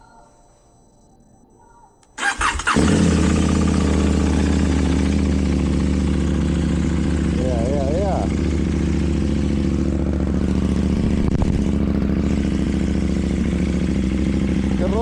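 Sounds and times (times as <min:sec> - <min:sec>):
motorcycle starter cranking: 0:02.2 - 0:05.3
motorcycle engine idling: 0:02.2 - 0:15.0.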